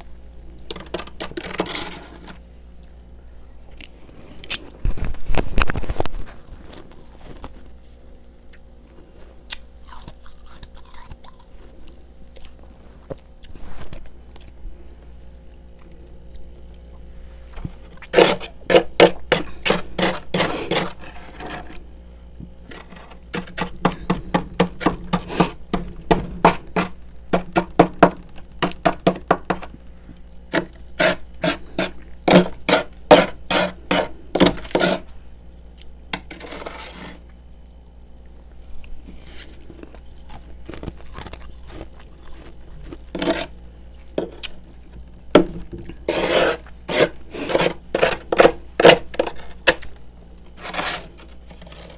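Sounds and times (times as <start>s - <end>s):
small scrapes and clicks: 0.6s - 3.0s, 17.5s - 21.8s, 22.7s - 27.6s, 28.6s - 35.1s, 36.2s - 37.4s, 38.6s - 43.5s, 46.0s - 50.0s, 50.6s - 51.9s
freezer frost crunching: 3.8s - 7.8s, 8.9s - 14.6s, 15.8s - 21.9s, 22.6s - 35.1s, 38.2s - 44.9s, 45.8s - 51.9s.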